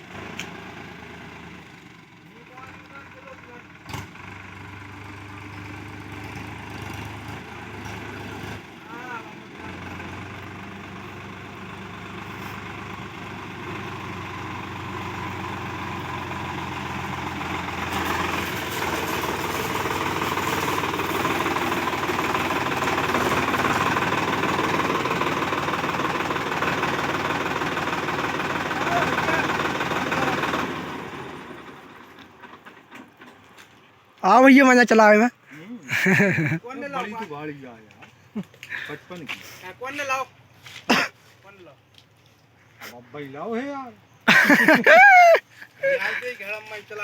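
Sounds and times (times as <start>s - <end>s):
diesel tractor engine running hard: 0.0s - 33.6s.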